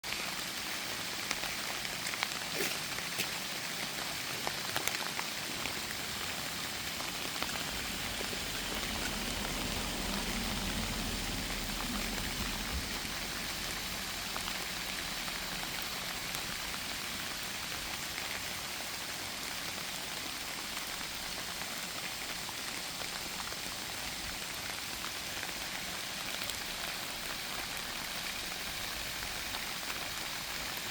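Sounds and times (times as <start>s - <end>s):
light rain falling: 0.0s - 30.9s
soft low rumble: 7.3s - 15.1s.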